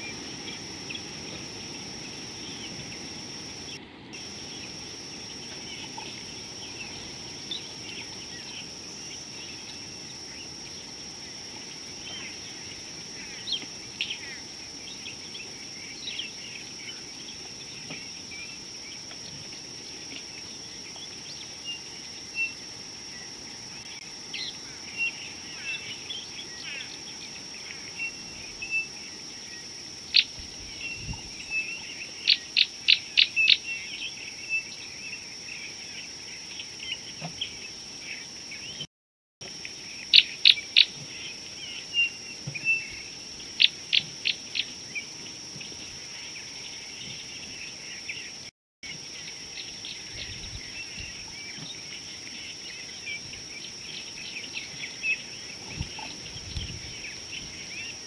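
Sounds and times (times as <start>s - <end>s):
wild birds calling: 0.0s - 18.5s.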